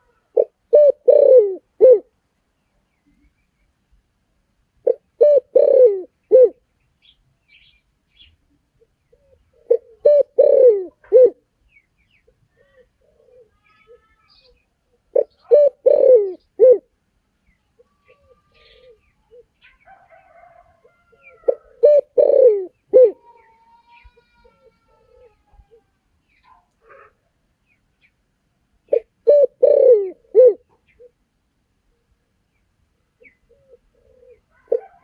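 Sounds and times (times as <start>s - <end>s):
dove cooing: 0.0s - 2.1s, 4.8s - 6.6s, 9.1s - 11.4s, 12.6s - 14.0s, 15.1s - 16.9s, 17.8s - 25.9s, 28.9s - 31.2s, 33.2s - 35.0s
faint small bird chirps: 11.6s - 15.6s, 17.4s - 19.9s.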